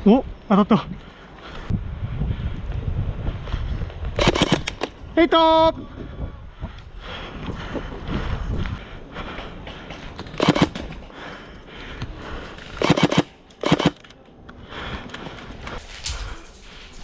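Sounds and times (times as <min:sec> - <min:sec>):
airsoft gun rapid-fire bursts: 0:04.2 - 0:04.7, 0:10.4 - 0:10.8, 0:12.8 - 0:14.0.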